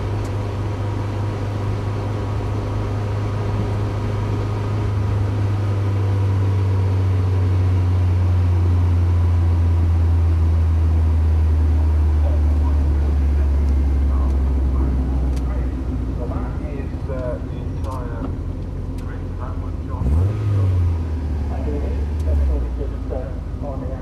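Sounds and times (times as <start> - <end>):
car engine droning: 0.0 - 24.0.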